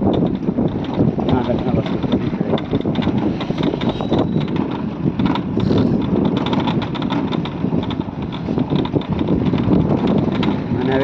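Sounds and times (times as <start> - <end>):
knocks and rattles: 0.0 - 11.0
motorcycle running: 0.0 - 11.0
wind buffeting microphone: 0.0 - 11.0.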